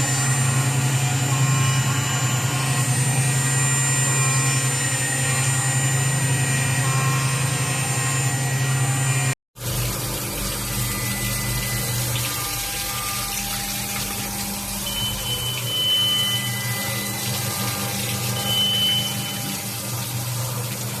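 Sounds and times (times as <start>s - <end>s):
machine hum: 0.0s - 21.0s
high-pitched cutting tone: 10.7s - 20.6s.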